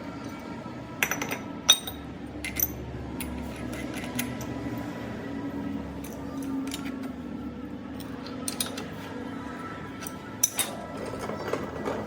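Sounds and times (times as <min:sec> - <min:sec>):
metal tools clinking: 0:01.0 - 0:04.6, 0:10.0 - 0:12.0.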